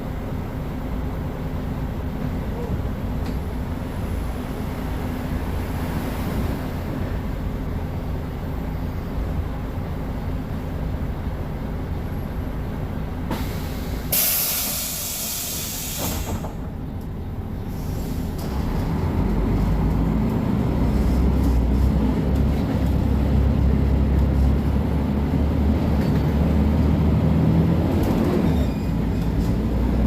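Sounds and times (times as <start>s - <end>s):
bus diesel engine rumbling: 0.0s - 30.0s
compressed air hiss: 13.3s - 16.5s.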